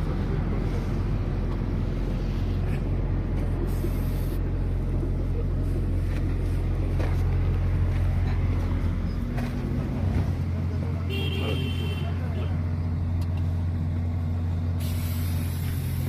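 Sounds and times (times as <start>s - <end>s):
engine humming: 0.0s - 16.0s
brief high hiss: 14.8s - 16.0s.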